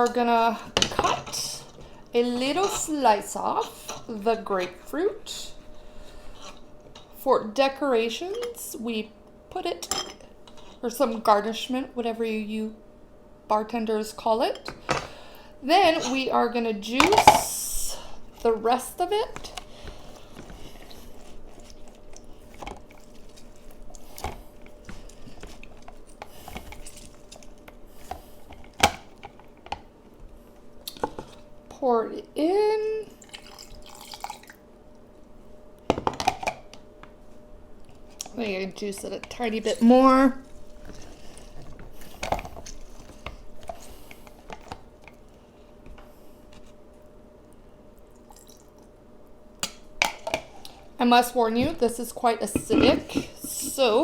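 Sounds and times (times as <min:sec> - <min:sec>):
faint steady hum: 0:00.0 - 0:54.0
grapefruit juicing squishes: 0:19.3 - 0:31.6, 0:33.1 - 0:35.2, 0:39.3 - 0:46.8.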